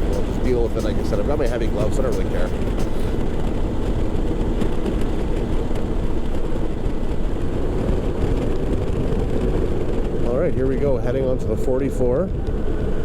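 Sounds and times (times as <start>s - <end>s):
motorcycle engine running: 0.0s - 10.3s
wind noise on microphone: 0.0s - 13.0s.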